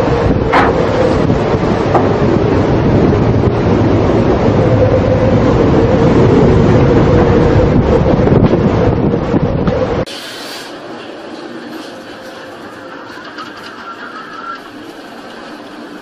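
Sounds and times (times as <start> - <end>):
steady low tone: 0.0 - 10.1
wind battering microphone: 0.0 - 10.1.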